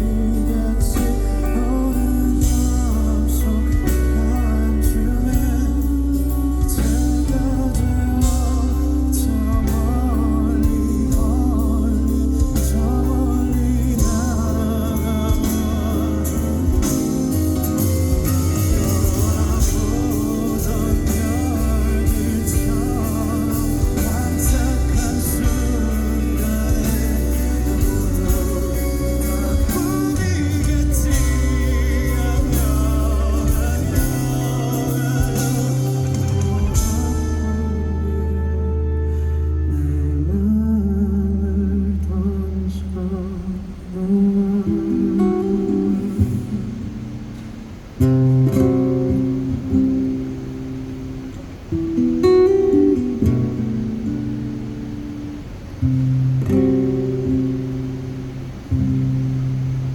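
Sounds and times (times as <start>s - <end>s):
live band with singing: 0.0s - 51.8s.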